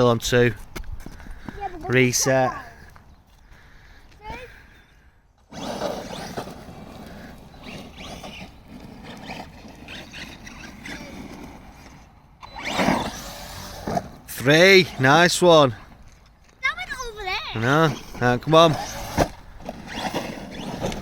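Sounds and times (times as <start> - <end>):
electric motor whining: 5.4 - 15.4, 17.6 - 21.0.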